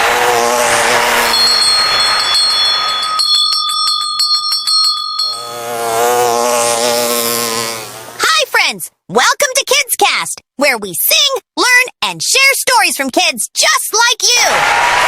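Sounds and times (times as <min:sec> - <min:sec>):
sustained wavering tone: 0:00.2 - 0:06.2
bright bell-like chime: 0:00.9 - 0:05.7.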